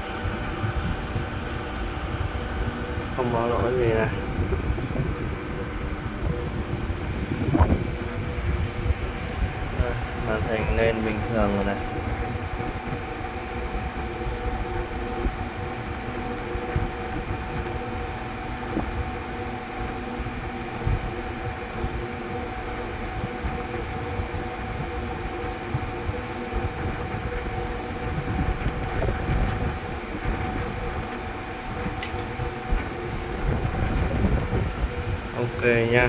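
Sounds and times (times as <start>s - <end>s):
uneven low rumble: 0.0s - 13.1s
electrical hum and fan whir: 0.0s - 36.0s.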